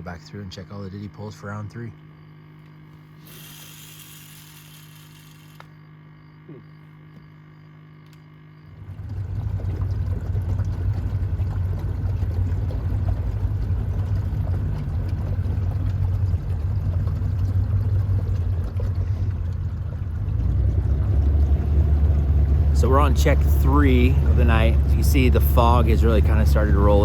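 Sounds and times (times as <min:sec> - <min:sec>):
boat motor running: 0:00.0 - 0:27.0
water wash: 0:08.8 - 0:27.0.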